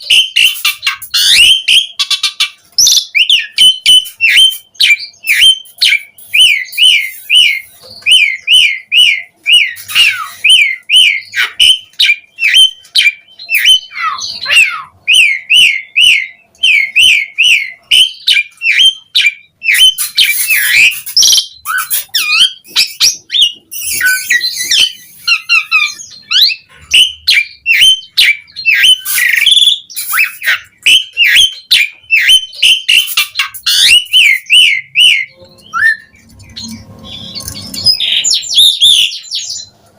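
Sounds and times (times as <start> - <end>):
starling whistled song: 0.0 - 39.7
harsh scratchy bird calls: 0.0 - 39.9.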